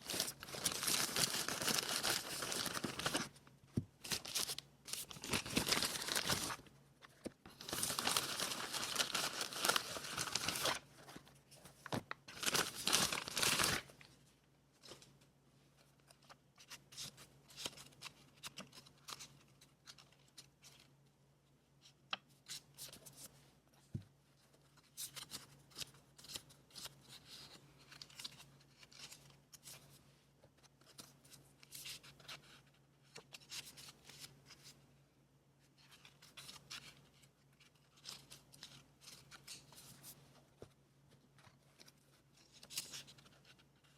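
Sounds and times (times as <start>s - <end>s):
paper rustling: 0.0s - 3.4s, 4.0s - 13.9s.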